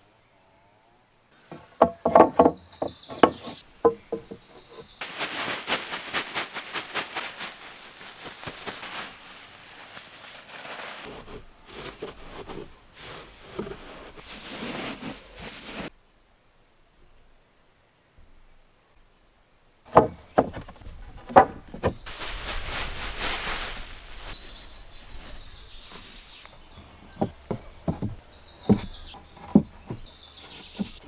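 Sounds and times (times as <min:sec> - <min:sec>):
sharp knocks on wood: 0:01.5 - 0:04.4, 0:19.9 - 0:22.0.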